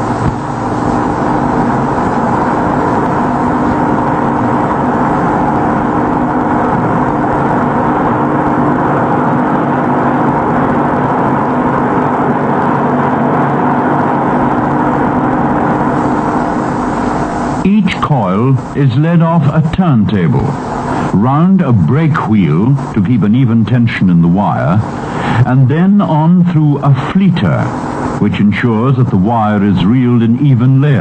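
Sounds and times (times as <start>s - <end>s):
machinery humming and whirring: 0.0s - 31.0s.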